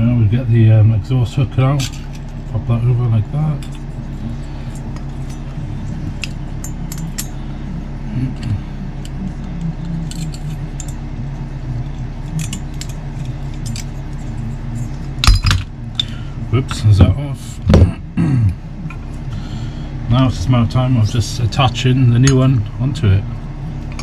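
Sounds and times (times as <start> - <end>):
steady low hum: 0.0 - 24.0
metal parts clinking: 4.7 - 7.4, 9.8 - 11.0, 12.2 - 14.4, 15.2 - 16.1.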